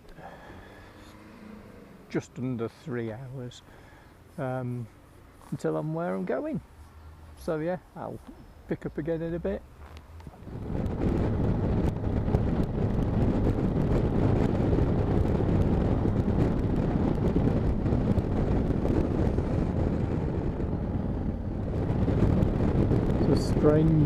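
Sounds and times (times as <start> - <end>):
road noise: 0.0 - 24.0
wind buffeting microphone: 5.6 - 24.0.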